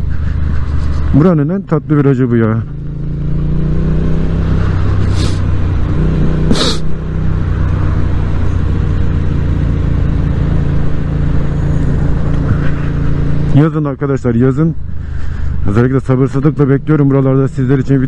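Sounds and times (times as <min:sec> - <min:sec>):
motorcycle engine cruising: 0:00.0 - 0:18.0
short hissing bursts: 0:05.1 - 0:05.5, 0:06.5 - 0:06.9.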